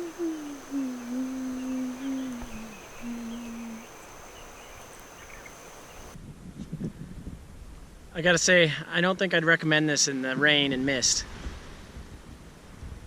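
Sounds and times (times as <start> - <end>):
person humming low notes: 0.0 - 3.9
faint high-pitched whine: 0.0 - 6.2.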